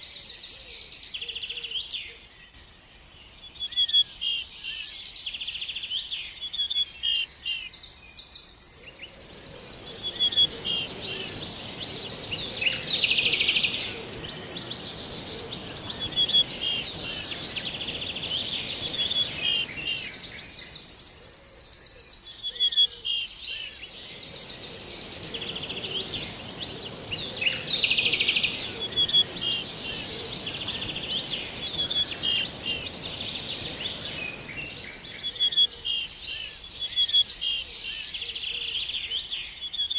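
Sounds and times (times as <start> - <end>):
songbirds chirping: 0.0 - 39.9
high-pitched hiss: 8.8 - 21.5, 23.6 - 36.3.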